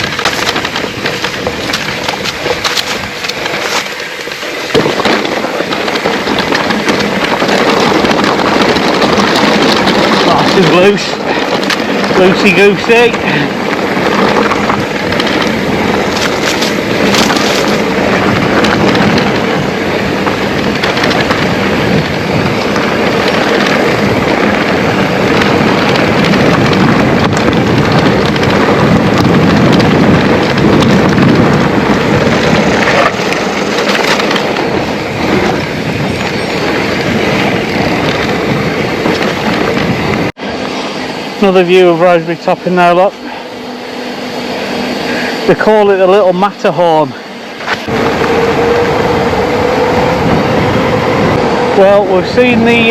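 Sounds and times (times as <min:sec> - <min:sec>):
tyres crunching on stones: 0:00.0 - 0:39.7
bike clattering over bumps: 0:00.0 - 0:40.7.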